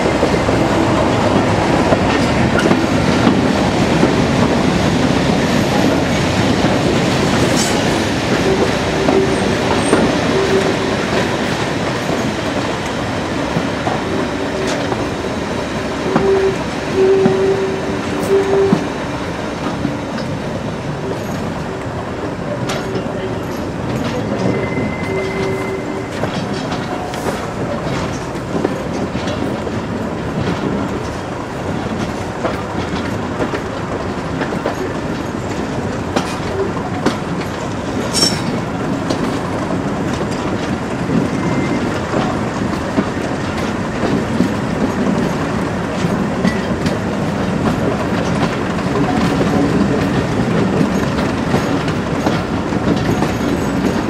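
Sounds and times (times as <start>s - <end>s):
train rumble: 0.0s - 54.0s
train wheels clicking over rail joints: 0.0s - 54.0s
high squeal: 24.4s - 26.2s.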